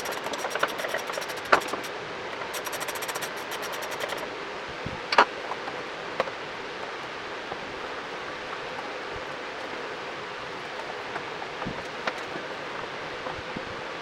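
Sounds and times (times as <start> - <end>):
rapid sharp clicks: 0.0 - 1.9, 2.6 - 4.3
steady hiss: 0.0 - 1.9, 2.6 - 4.3.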